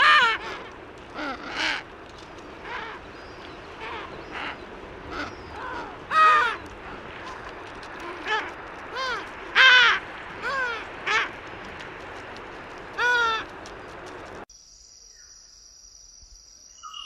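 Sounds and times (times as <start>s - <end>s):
bird harsh crow-like calls: 0.0s - 11.5s, 12.9s - 14.4s.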